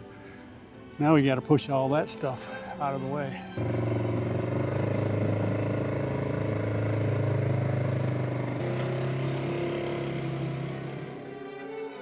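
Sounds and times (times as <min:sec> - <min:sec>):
plow vehicle engine running: 0:03.6 - 0:11.5.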